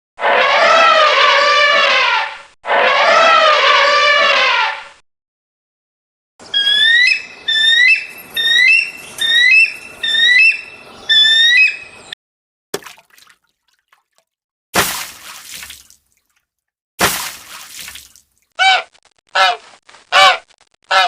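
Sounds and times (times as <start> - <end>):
bird whistling call: 6.4 - 12.2.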